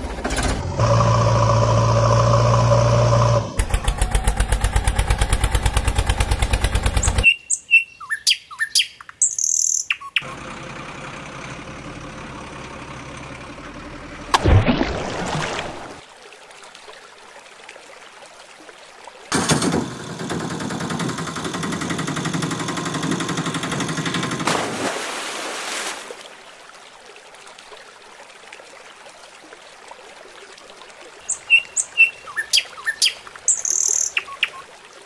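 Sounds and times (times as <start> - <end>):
short high bird chirps: 7.0 - 10.3, 31.3 - 34.6
faint rush of water: 11.9 - 19.4, 21.8 - 35.0.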